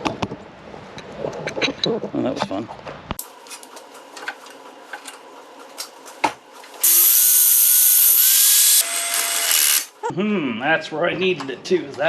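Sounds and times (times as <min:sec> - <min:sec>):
cordless drill drilling: 0:06.8 - 0:09.9.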